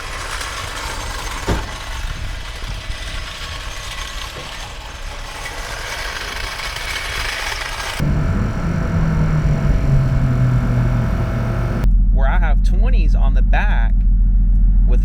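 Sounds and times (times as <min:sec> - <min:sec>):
tyre and road noise: 0:00.0 - 0:11.9
car engine running while driving: 0:06.5 - 0:11.9.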